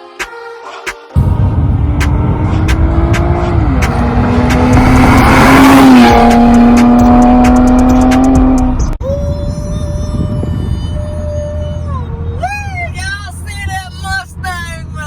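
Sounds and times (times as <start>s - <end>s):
car engine at high revs: 1.2s - 9.0s.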